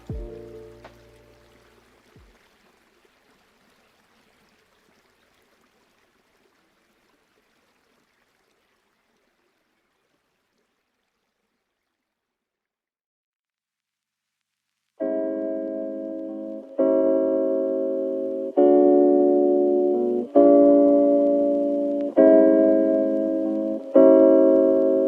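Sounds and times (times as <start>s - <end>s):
aquarium filter water trickle: 0.0s - 12.6s.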